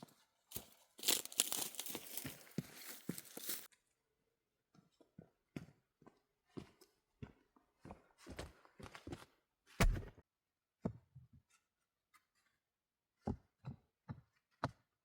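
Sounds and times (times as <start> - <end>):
knocks and thuds: 9.8 - 10.2.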